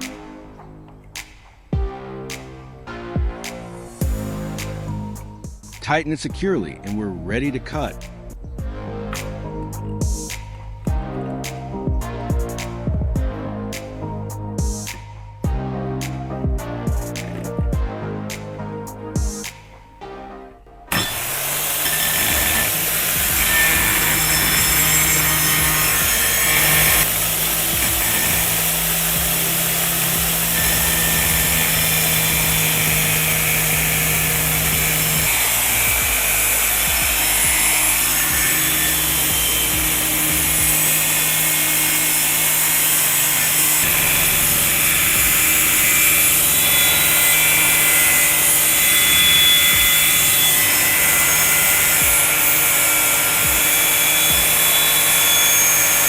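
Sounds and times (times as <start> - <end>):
angle grinder cutting metal sheet: 20.9 - 56.0.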